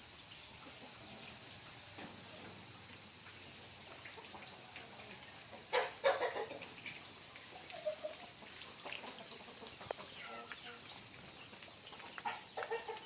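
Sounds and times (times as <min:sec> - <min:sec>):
steady rain falling: 0:00.0 - 0:13.0
chicken clucking: 0:03.9 - 0:13.0.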